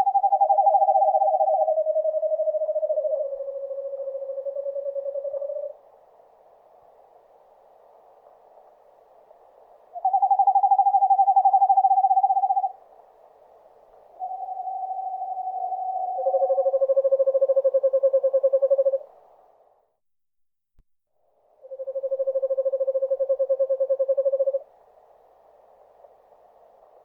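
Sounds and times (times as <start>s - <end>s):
owl trilling: 0.0s - 5.8s, 10.0s - 12.8s, 14.2s - 19.1s, 21.6s - 24.6s.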